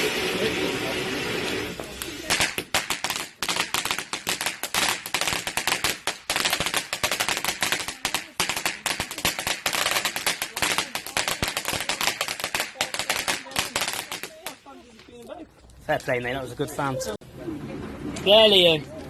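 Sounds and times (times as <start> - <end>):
firework fountain crackling: 0.0 - 15.0.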